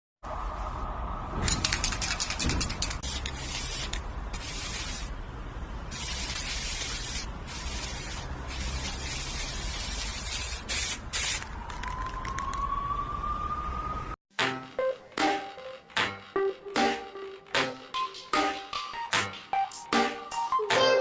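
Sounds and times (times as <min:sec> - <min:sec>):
bursts of hissing noise: 0:02.8 - 0:05.2, 0:05.9 - 0:11.5.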